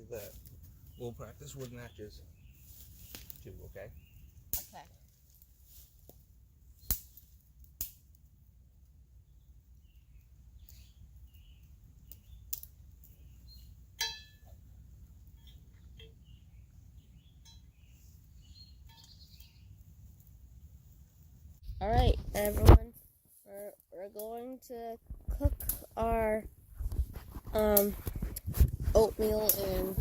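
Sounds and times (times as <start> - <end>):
faint bird chirps: 9.2 - 14.7, 15.3 - 19.8.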